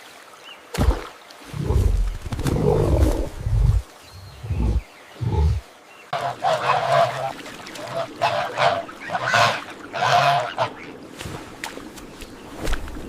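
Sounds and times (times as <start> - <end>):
geese or ducks calling: 6.1 - 11.0.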